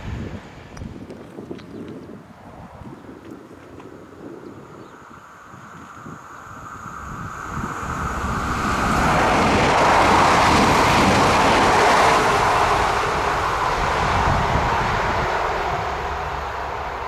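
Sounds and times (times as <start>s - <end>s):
train running past on rails: 5.0s - 17.0s.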